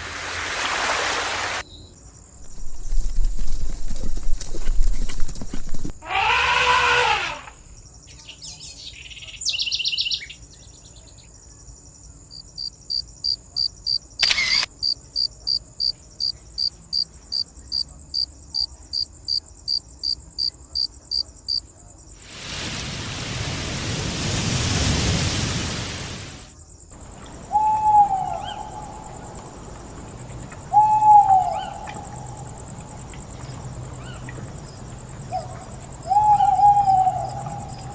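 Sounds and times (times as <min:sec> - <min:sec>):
high insect trill: 0:01.9 - 0:23.6, 0:26.4 - 0:37.9
owl hoots: 0:06.0 - 0:07.6, 0:27.0 - 0:34.4, 0:35.3 - 0:37.9
pitched animal call: 0:06.0 - 0:07.6, 0:27.1 - 0:34.4.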